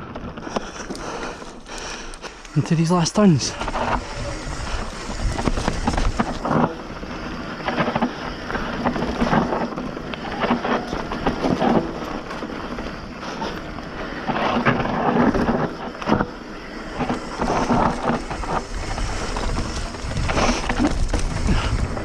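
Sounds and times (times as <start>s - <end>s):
tyres crunching on dirt: 0.0s - 22.0s
bike frame and chain rattling: 0.1s - 22.0s
wind buffeting microphone: 3.5s - 7.6s, 16.9s - 22.0s.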